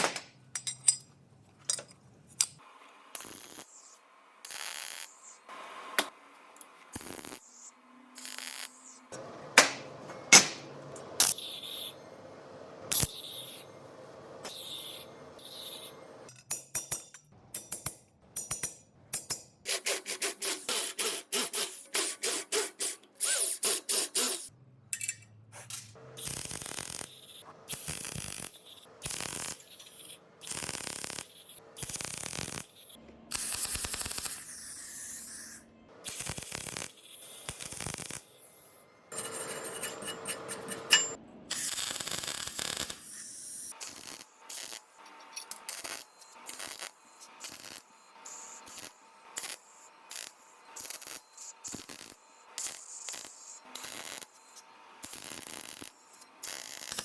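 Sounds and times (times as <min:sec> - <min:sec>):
scraping strokes on a workpiece: 0:19.6 - 0:24.5, 0:34.1 - 0:35.7, 0:38.4 - 0:41.2.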